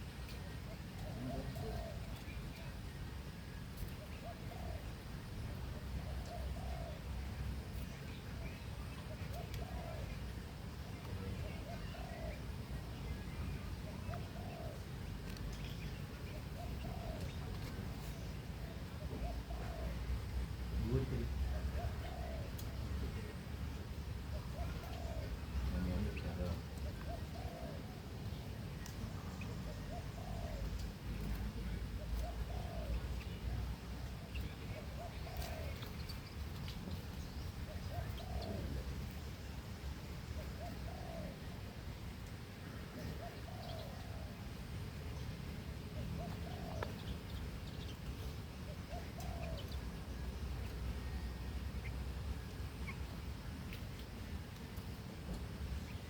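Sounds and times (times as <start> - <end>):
small birds chirping: 0.0 - 56.0
birds giving short low calls: 24.3 - 28.4, 29.0 - 39.0, 46.0 - 52.0.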